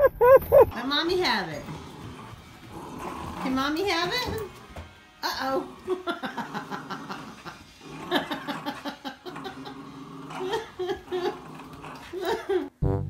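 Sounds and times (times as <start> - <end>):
dogs growling in play: 0.8 - 12.7.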